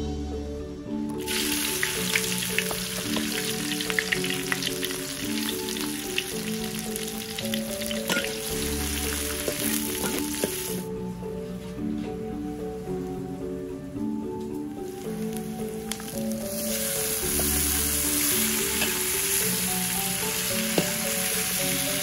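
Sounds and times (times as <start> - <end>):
vegetables sizzling in hot oil: 1.2 - 10.9, 15.3 - 22.0.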